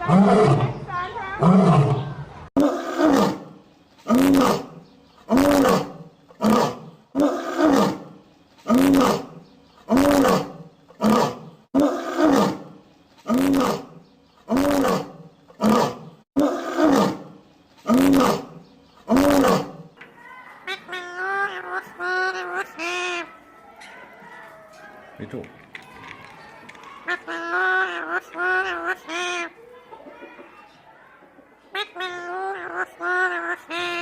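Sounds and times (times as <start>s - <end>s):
lion roaring: 1.4s - 3.5s, 4.1s - 8.1s, 8.7s - 12.7s, 13.3s - 17.3s, 17.9s - 19.9s.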